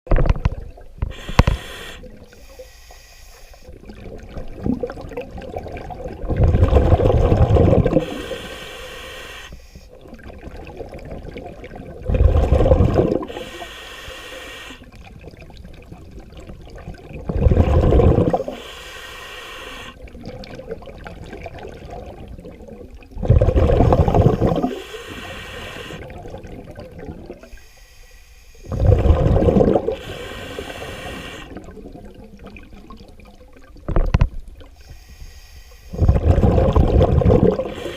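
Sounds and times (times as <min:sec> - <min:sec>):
diver breathing through regulator: 0:01.1 - 0:03.7, 0:07.4 - 0:09.9, 0:12.2 - 0:14.9, 0:17.6 - 0:20.0, 0:23.4 - 0:26.2, 0:27.4 - 0:31.7, 0:34.8 - 0:37.9
soft hiss: 0:01.1 - 0:03.8, 0:08.0 - 0:10.0, 0:27.4 - 0:28.7, 0:34.6 - 0:36.0
rushing exhaust bubbles: 0:04.2 - 0:08.1, 0:12.0 - 0:13.3, 0:17.2 - 0:18.5, 0:23.2 - 0:24.8, 0:28.7 - 0:30.0, 0:36.0 - 0:37.9.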